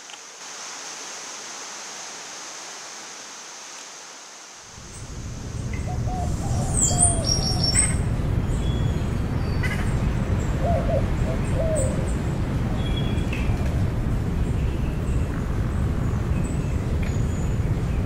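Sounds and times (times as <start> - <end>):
birds chirping and whistling: 5.6 - 10.0.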